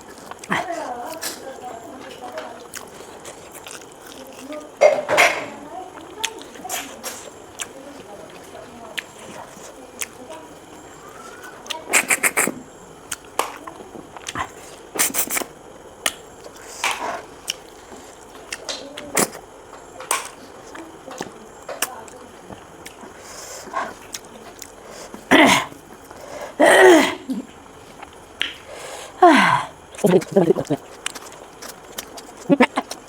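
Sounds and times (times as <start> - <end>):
mouth slurping and chewing: 11.0 - 13.3, 14.1 - 15.5, 22.5 - 27.2, 29.8 - 33.0
loud vocal sounds: 29.2 - 29.8.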